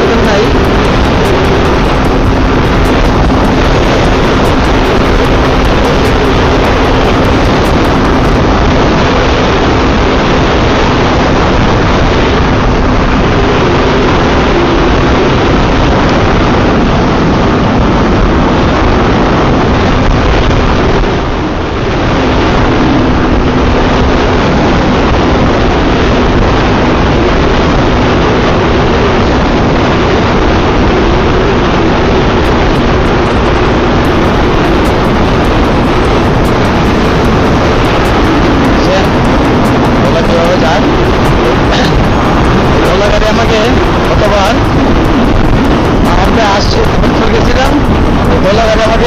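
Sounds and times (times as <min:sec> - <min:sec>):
motorcycle engine running: 0:00.0 - 0:10.2, 0:31.2 - 0:49.0
wind and road noise: 0:00.0 - 0:49.0.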